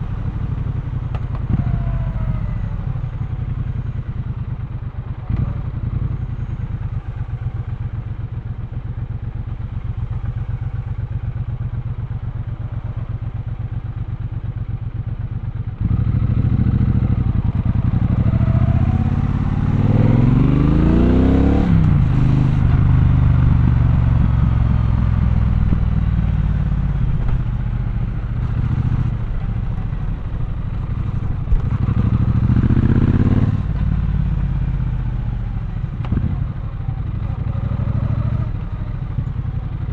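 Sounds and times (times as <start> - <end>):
motorcycle engine revving: 0.0 - 8.0, 9.4 - 39.8.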